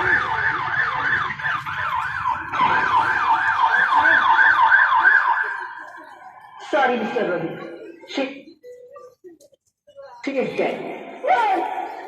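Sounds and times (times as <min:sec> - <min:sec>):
ambulance siren yelping: 0:00.0 - 0:06.6.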